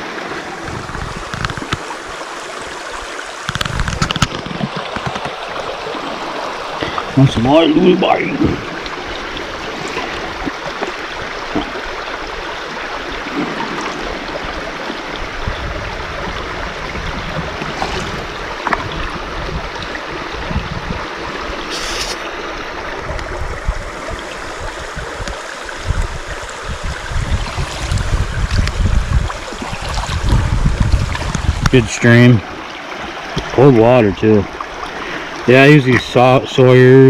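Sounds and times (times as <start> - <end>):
brook rushing: 17.4 - 19.0.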